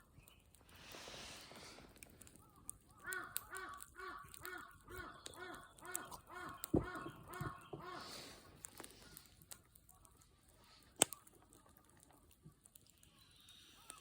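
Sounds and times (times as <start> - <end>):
wood fire crackling: 0.0 - 14.0
crow cawing: 2.9 - 8.3.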